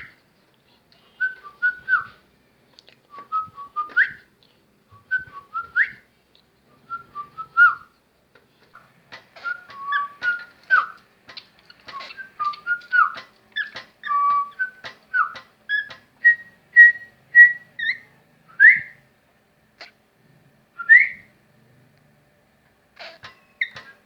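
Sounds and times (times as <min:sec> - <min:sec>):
upward-sliding whistles: 0:01.2 - 0:02.1, 0:03.2 - 0:04.2, 0:05.0 - 0:06.0, 0:09.4 - 0:11.0, 0:11.9 - 0:19.0, 0:20.8 - 0:21.3
cockatiel whistling chirpy notes: 0:09.4 - 0:11.0.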